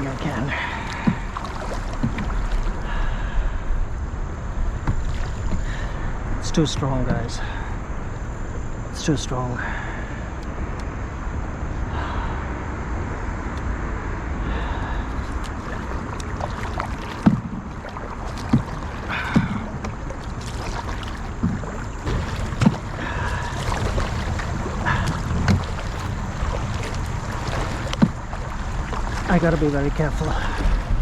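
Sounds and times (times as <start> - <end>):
paddle knocks: 0.0 - 2.8, 15.4 - 31.0
paddle strokes splashing: 0.0 - 8.8, 14.4 - 31.0
rushing river water: 0.0 - 12.3, 13.6 - 31.0
wind on microphone: 9.6 - 31.0.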